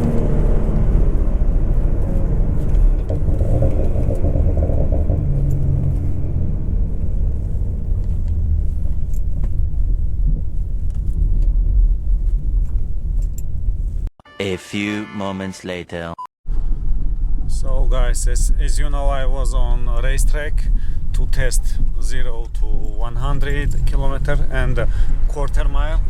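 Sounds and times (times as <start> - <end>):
road noise: 0.0 - 14.0, 20.6 - 26.0
car engine low rumble: 0.0 - 14.1, 16.5 - 26.0.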